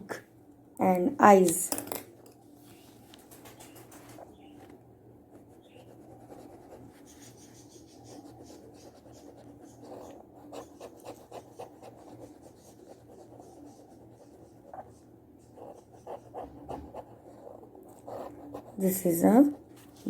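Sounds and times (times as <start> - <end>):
low steady hum: 0.0 - 20.0
pen scratching on paper: 5.4 - 20.0.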